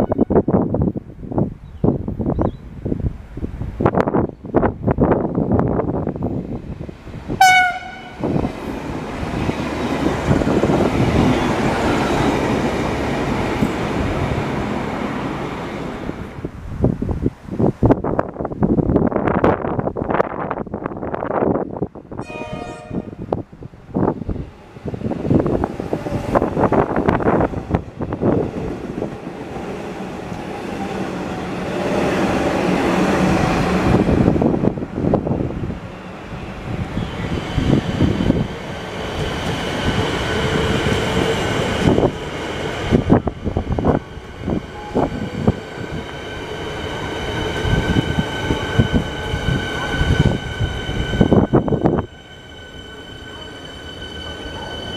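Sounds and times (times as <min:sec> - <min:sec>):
train wheels rumbling on rails: 0:00.0 - 0:54.9
train horn blast: 0:07.4 - 0:08.3, 0:22.2 - 0:23.3.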